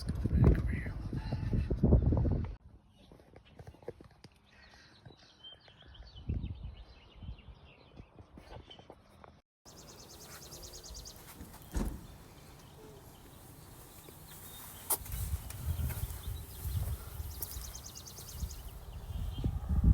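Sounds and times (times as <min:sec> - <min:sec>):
birds chirping: 0:09.7 - 0:19.9
sharp knock: 0:11.7 - 0:12.1.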